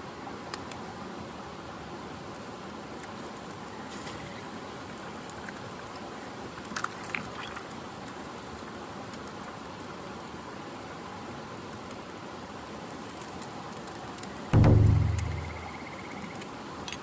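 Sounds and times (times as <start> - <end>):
high chirp: 14.6 - 16.4
sharp clicks: 14.6 - 16.5.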